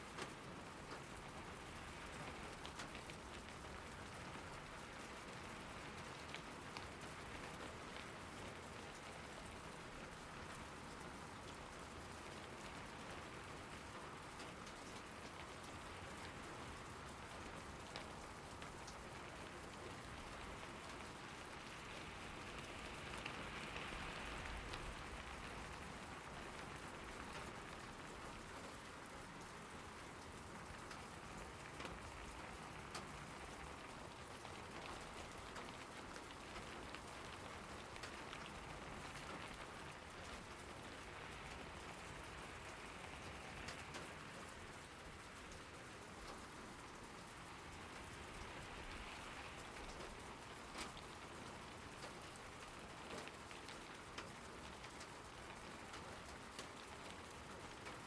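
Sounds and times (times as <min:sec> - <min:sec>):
raindrops ticking close by: 0:00.0 - 0:58.0
steady rain falling: 0:00.0 - 0:58.0.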